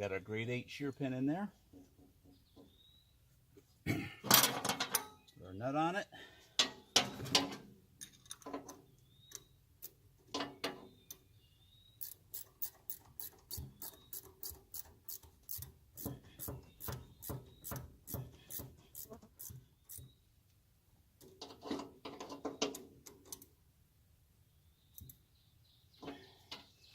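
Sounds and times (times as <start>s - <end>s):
ratchet wrench clicking: 12.0s - 20.0s.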